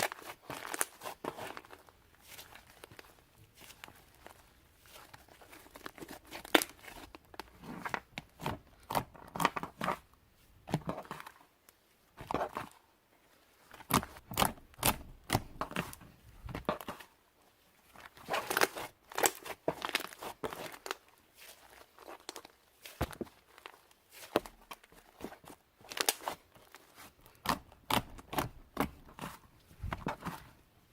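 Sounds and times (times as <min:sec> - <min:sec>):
slime popping and crackling: 0:18.1 - 0:21.0, 0:21.6 - 0:26.4.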